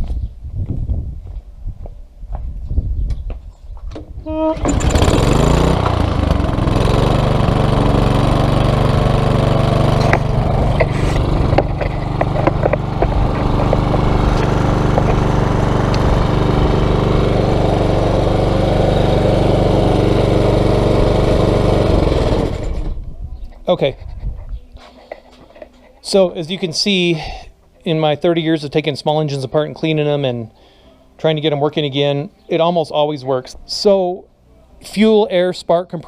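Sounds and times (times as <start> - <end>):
small gasoline engine running: 4.3 - 23.0.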